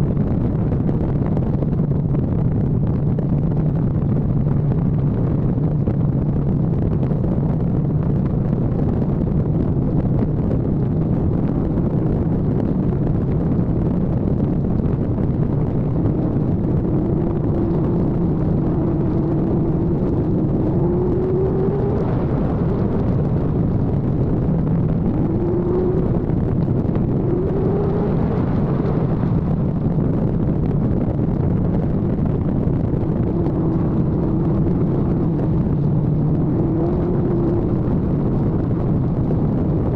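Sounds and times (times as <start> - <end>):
wind rush on microphone: 0.0 - 39.9
motorcycle engine running: 9.4 - 39.9.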